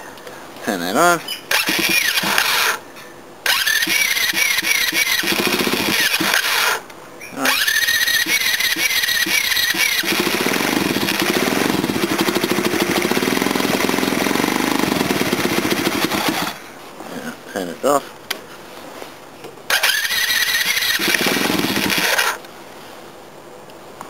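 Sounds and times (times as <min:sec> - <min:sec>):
small engine running unmuffled: 0:01.5 - 0:02.8, 0:03.5 - 0:06.8, 0:07.5 - 0:16.6, 0:19.7 - 0:22.4
whining electric starter: 0:01.5 - 0:02.8, 0:03.4 - 0:06.8, 0:07.4 - 0:16.6, 0:19.7 - 0:22.4.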